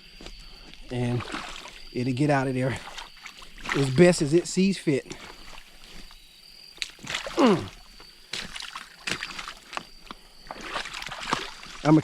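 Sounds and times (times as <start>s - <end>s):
faint high whine: 0.0s - 6.4s
water sloshing and splashing: 0.9s - 12.0s
person grunting: 7.3s - 7.8s.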